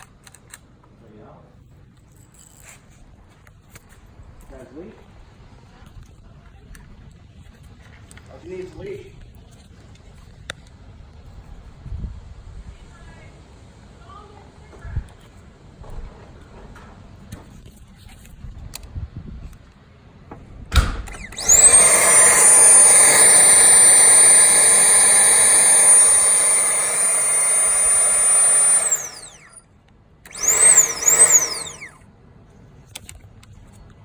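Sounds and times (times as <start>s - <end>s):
air pump whining: 21.1s - 29.6s, 30.3s - 32.0s.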